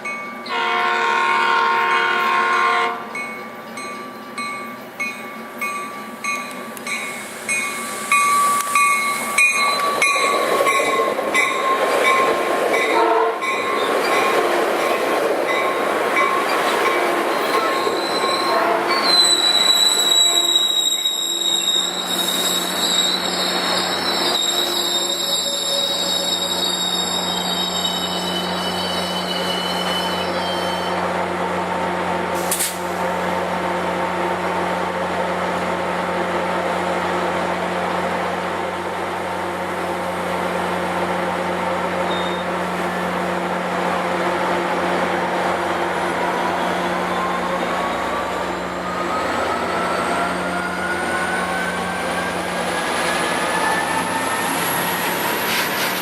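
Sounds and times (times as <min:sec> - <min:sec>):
train wheel squeal: 0:05.8 - 0:31.1, 0:42.0 - 0:42.6, 0:46.2 - 0:56.0.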